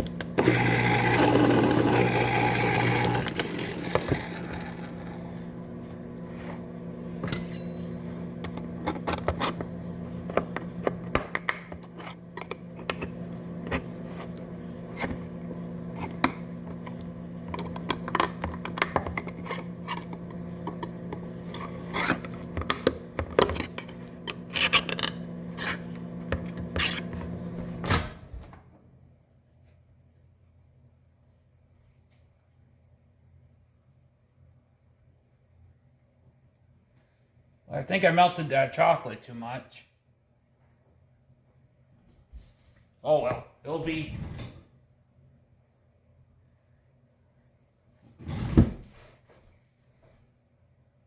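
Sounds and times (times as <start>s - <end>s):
microwave oven humming: 0.0s - 29.0s.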